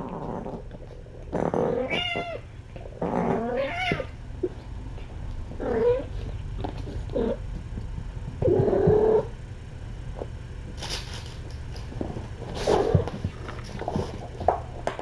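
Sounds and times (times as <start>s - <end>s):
cat meowing: 1.7s - 4.6s.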